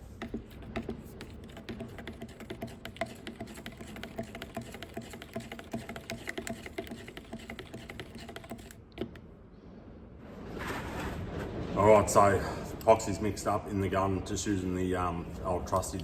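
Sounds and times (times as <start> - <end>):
light clicks and taps in a cup: 0.2 - 9.2
low wind rumble: 8.8 - 16.0.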